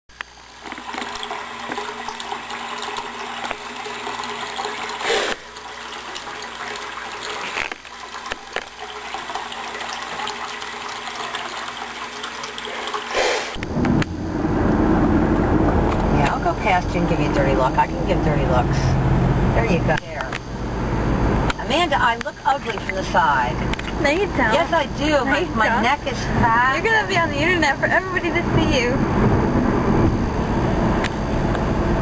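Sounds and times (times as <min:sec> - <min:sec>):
low rumble: 0:13.4 - 0:21.5, 0:27.2 - 0:32.0.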